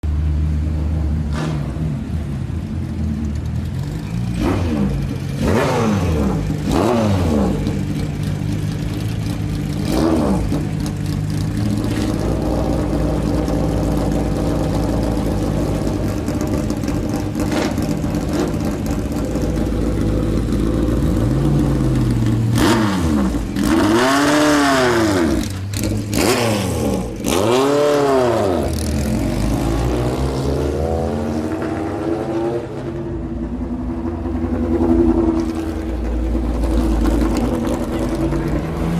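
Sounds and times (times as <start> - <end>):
racing engine idling: 2.0 - 24.1, 32.8 - 38.9
engine throttle blips: 32.6 - 38.9.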